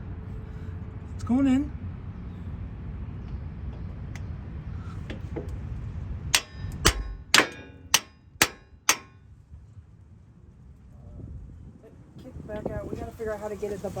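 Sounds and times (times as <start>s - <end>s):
hammer striking metal: 6.4s - 9.2s.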